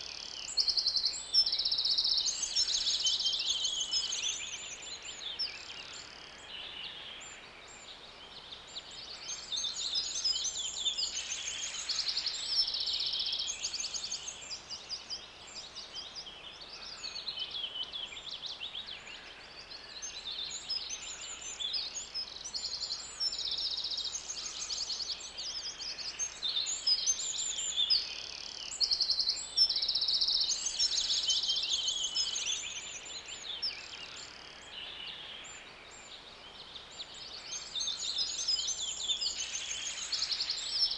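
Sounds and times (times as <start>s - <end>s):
faint background hiss: 0.0s - 40.9s
songbirds chirping and trilling: 0.0s - 40.9s.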